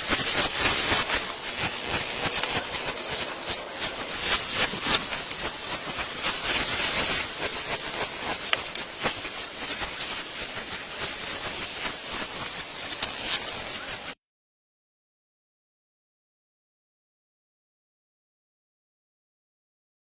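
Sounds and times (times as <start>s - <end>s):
hissing noise with crackles: 0.0s - 14.2s.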